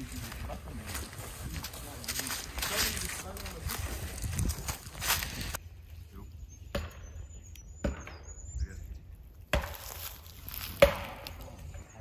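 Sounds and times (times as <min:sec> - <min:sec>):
sharp knocks on hard objects: 0:06.7 - 0:07.1, 0:07.8 - 0:08.3, 0:09.5 - 0:10.0, 0:10.8 - 0:11.4.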